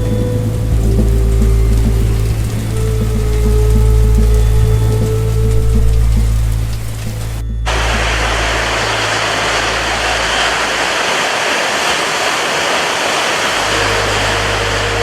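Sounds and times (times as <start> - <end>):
low steady hum: 0.0 - 12.4, 13.0 - 15.0
rushing water: 0.0 - 15.0.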